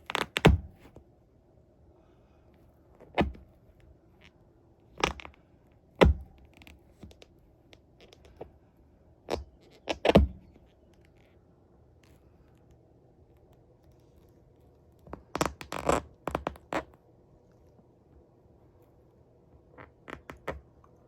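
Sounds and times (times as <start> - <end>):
handling knocks and thumps: 6.0 - 6.6.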